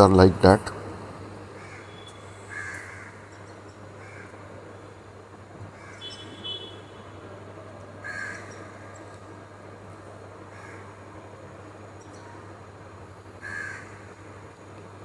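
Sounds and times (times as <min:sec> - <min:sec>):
crow-like bird calls: 0:01.6 - 0:03.4, 0:04.0 - 0:04.4, 0:05.7 - 0:06.7, 0:08.0 - 0:09.0, 0:10.5 - 0:11.0, 0:13.4 - 0:14.3.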